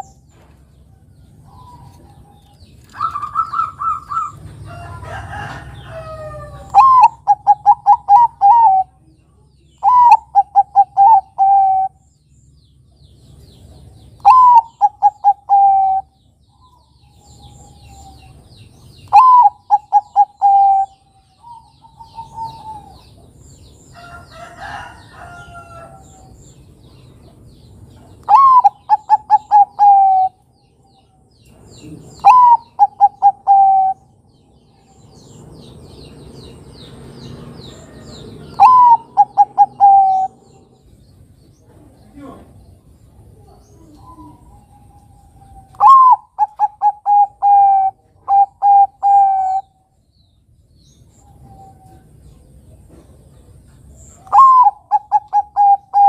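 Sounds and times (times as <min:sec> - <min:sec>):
dove cooing: 0:01.4 - 0:09.0, 0:09.8 - 0:12.0, 0:14.2 - 0:16.2, 0:19.0 - 0:23.3, 0:28.2 - 0:30.4, 0:31.8 - 0:34.2, 0:37.9 - 0:40.8, 0:43.2 - 0:49.7, 0:54.2 - 0:56.0.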